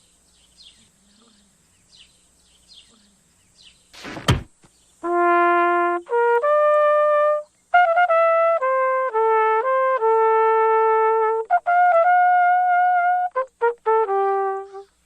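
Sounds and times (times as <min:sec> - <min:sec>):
solo trumpet melody: 0:05.0 - 0:15.0.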